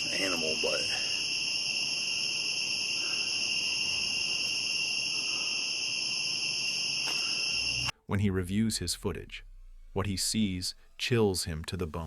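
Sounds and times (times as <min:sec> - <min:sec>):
crickets chirring: 0:00.0 - 0:07.9.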